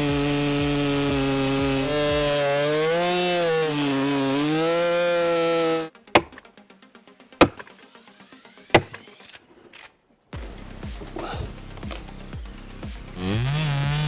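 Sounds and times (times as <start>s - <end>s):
chainsaw running at high revs: 0.0s - 5.9s, 10.4s - 14.0s
sharp knocks: 6.1s - 6.4s, 7.4s - 7.7s, 8.8s - 9.0s.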